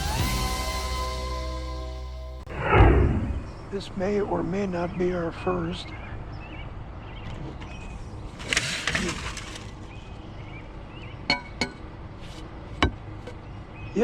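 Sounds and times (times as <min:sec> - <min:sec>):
hard scrap items rattling: 0:08.3 - 0:10.1.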